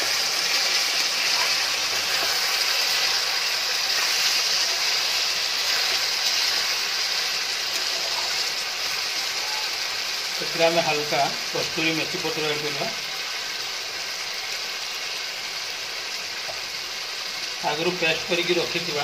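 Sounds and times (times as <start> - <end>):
chicken sizzling in a wok: 0.0 - 19.0.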